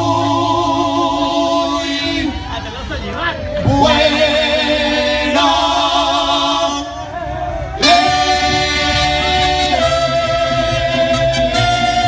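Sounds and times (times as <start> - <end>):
mariachi band playing: 0.0 - 12.0.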